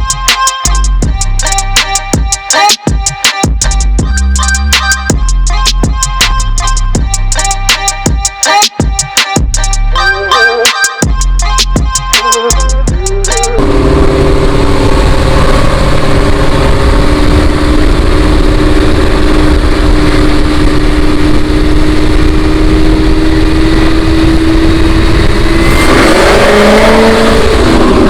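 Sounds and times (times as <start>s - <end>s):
high whine: 0.0s - 8.5s, 9.4s - 28.0s
car engine running loudly: 12.9s - 28.0s.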